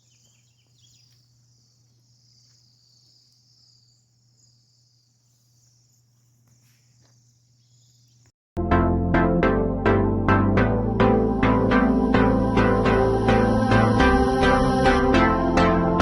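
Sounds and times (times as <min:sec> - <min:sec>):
bird chirps: 0:00.0 - 0:08.3
low steady hum: 0:08.6 - 0:16.0.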